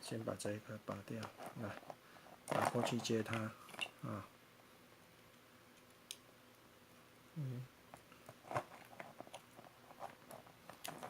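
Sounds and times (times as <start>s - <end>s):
man humming: 7.4s - 7.7s.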